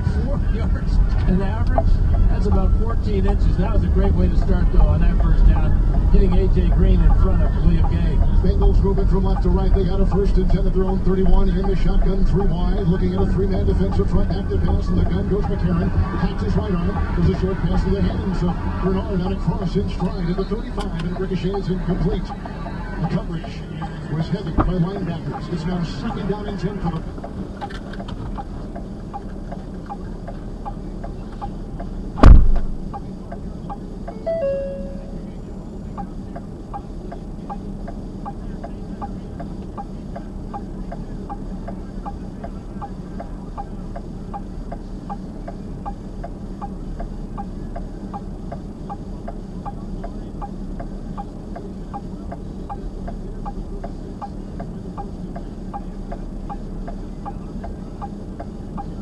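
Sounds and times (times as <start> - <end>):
low engine hum: 0.0 - 59.0
car indicator ticking: 8.6 - 15.6, 26.9 - 35.1
loud thump: 32.2 - 32.9
short electronic chime: 34.2 - 35.2.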